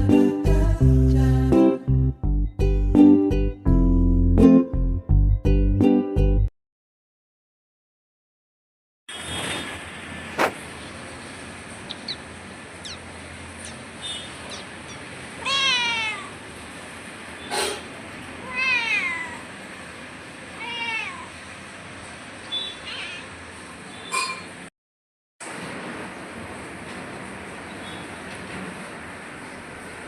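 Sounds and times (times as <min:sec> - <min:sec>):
sharp knock: 0:10.4 - 0:10.6
cat meowing: 0:15.4 - 0:16.4, 0:18.4 - 0:19.6, 0:20.6 - 0:21.4, 0:22.5 - 0:23.4.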